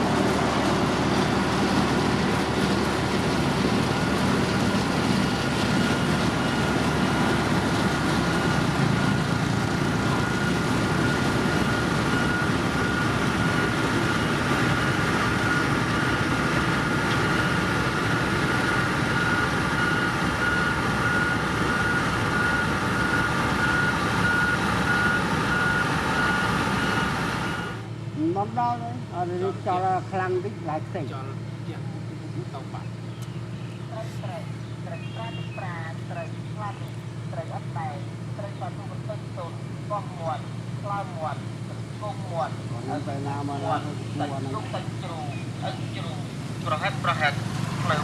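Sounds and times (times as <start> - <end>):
heavy machine engine running: 0.0 - 30.4, 31.2 - 48.0
high-pitched reversing alarm beeps: 8.2 - 27.9.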